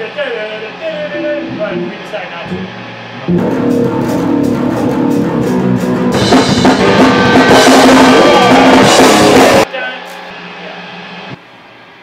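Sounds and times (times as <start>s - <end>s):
rock band playing: 0.5s - 9.7s.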